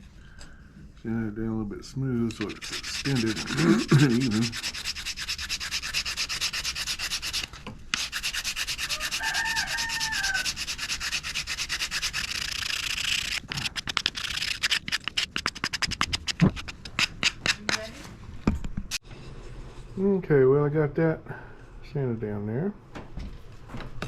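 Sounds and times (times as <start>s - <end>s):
sandpaper rubbing on wood: 2.4s - 18.0s.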